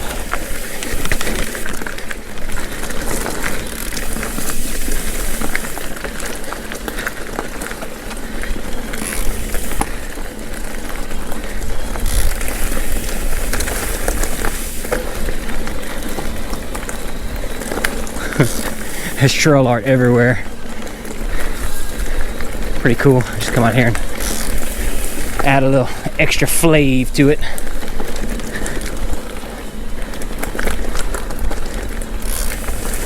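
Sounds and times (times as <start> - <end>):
bike clicks and rattles: 0.0 - 33.0
tyre and wind rush: 8.3 - 28.4.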